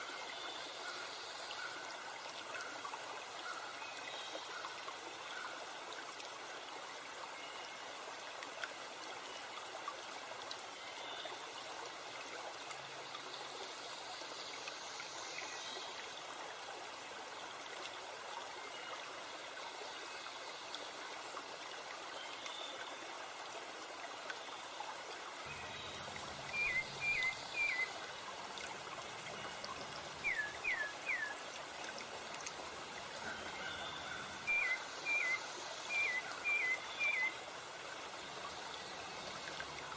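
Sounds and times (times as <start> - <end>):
stream rushing: 23.1 - 39.9.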